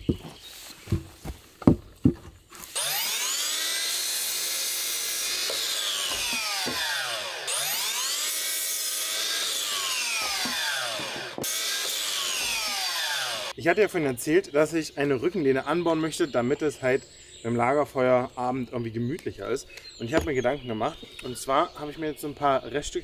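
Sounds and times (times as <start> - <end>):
wood being sawn: 2.5 - 13.6.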